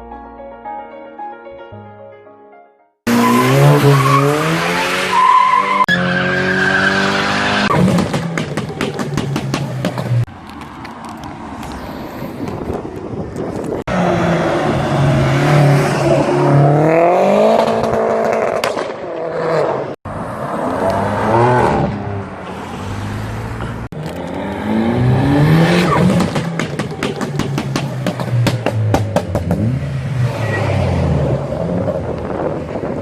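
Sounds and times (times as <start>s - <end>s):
car engines revving and accelerating: 3.1s - 8.5s, 13.8s - 33.0s.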